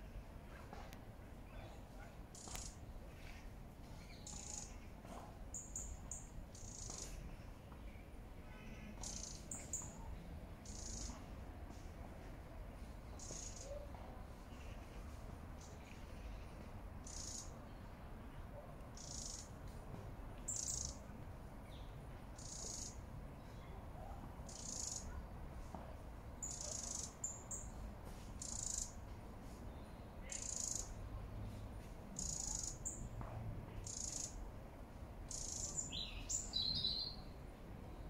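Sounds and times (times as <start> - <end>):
small bird chirping: 2.3 - 3.4, 4.0 - 4.9, 5.5 - 7.4, 8.9 - 11.2, 13.1 - 13.8, 17.0 - 17.6, 19.0 - 19.6, 20.5 - 21.0, 21.7 - 23.0, 24.5 - 25.2, 26.4 - 27.8, 28.4 - 29.0, 30.2 - 31.0, 32.2 - 33.0, 33.8 - 34.4, 35.3 - 37.3.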